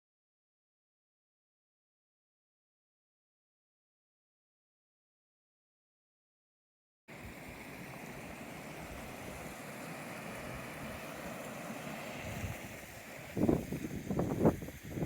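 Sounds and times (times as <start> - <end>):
water rushing: 7.1 - 15.0.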